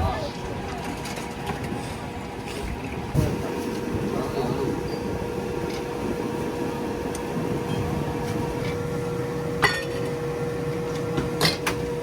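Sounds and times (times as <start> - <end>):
market background noise: 0.0 - 12.0
steady hum: 3.2 - 12.0
dishes clinking: 9.6 - 10.0.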